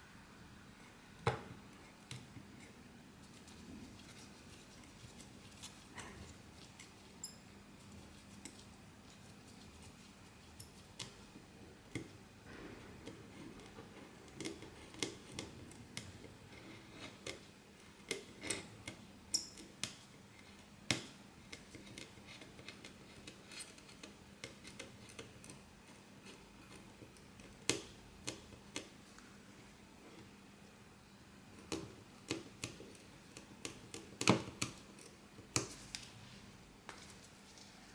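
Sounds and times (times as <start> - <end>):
faint steady hum: 0.0 - 37.9
small tools clicking and tapping: 18.0 - 20.2.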